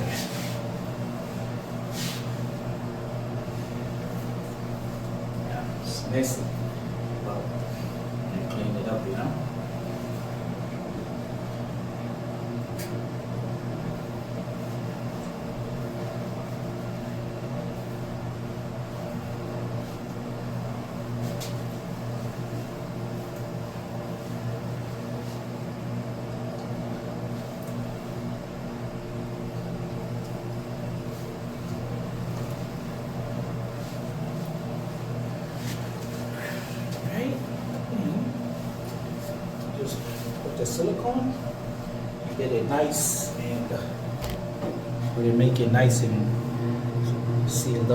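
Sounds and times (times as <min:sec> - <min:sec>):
steady machine hum: 0:00.0 - 0:47.9.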